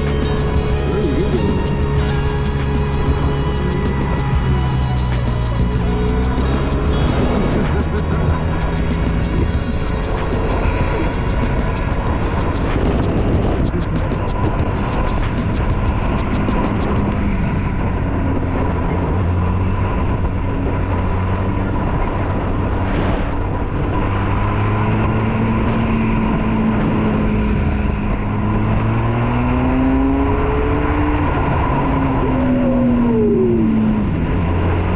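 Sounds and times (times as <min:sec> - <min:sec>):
motorcycle engine running: 0:00.0 - 0:18.8
wind rush over microphone: 0:00.0 - 0:34.9.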